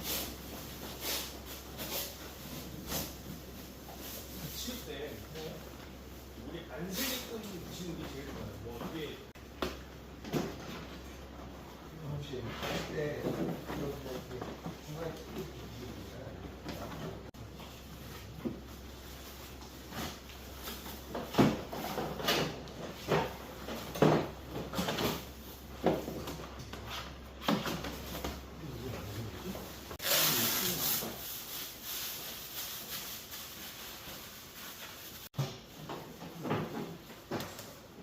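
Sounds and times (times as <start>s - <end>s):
short hissing: 30.0s - 31.0s.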